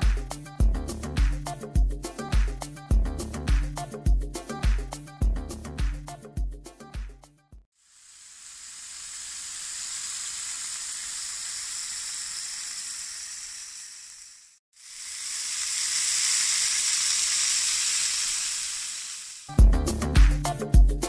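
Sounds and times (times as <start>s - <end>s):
patties sizzling in a griddle pan: 7.8s - 19.5s.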